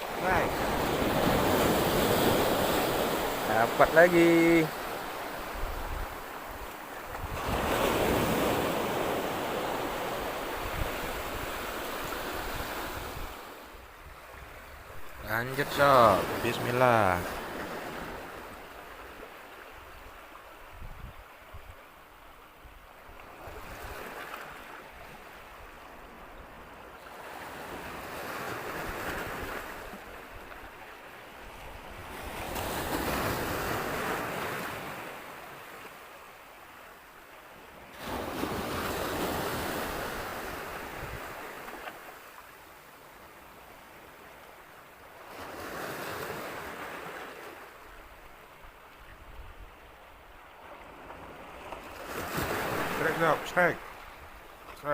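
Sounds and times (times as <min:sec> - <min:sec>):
surf washing onto beach: 0:00.0 - 0:20.1, 0:50.6 - 0:54.9
wind rumble on microphone: 0:20.7 - 0:21.8.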